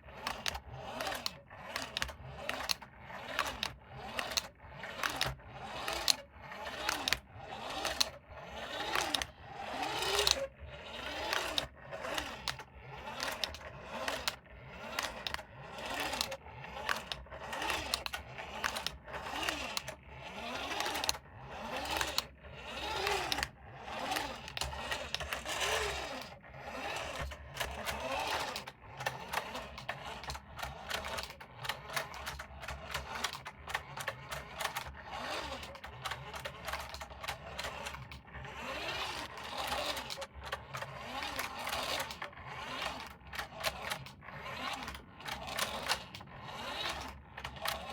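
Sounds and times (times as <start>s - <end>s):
toy car motor whirring: 0.0s - 47.9s.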